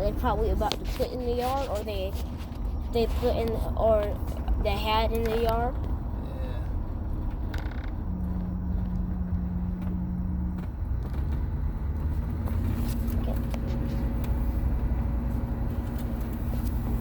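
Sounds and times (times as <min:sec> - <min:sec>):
engine idling rumble: 0:00.0 - 0:17.0.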